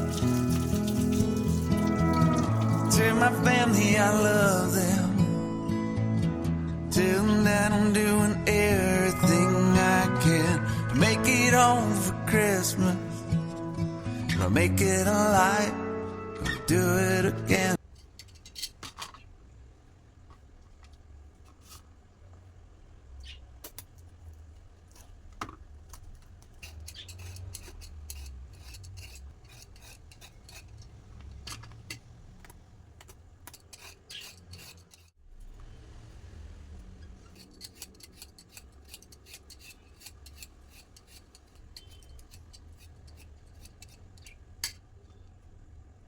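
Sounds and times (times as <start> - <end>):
utensils and dishes clicking: 0.0 - 2.9, 25.9 - 32.1, 33.0 - 35.2, 37.2 - 44.8.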